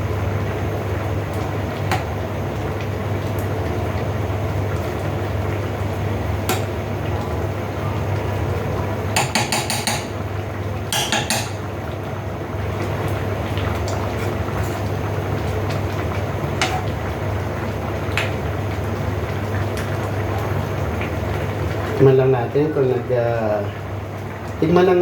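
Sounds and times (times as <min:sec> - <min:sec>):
cooking flame rumbling: 0:00.0 - 0:25.0
stew simmering: 0:00.0 - 0:25.0
utensil clinking against pan: 0:09.2 - 0:10.2, 0:10.9 - 0:11.6.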